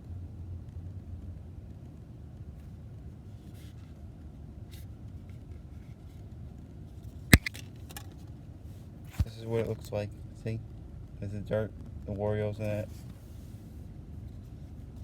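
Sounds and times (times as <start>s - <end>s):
handling clicks and taps: 7.4s - 7.6s.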